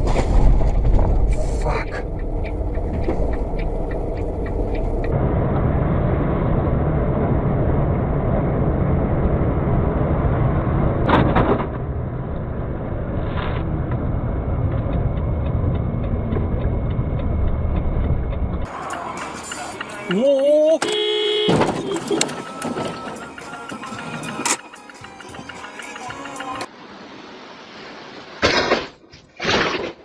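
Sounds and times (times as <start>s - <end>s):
heavy vehicle engine running: 0.0s - 20.3s.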